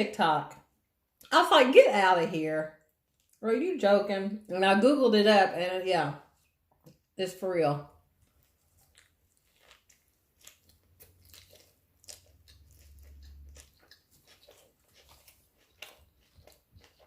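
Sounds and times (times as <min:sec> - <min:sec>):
person chewing and biting: 0:08.2 - 0:17.0.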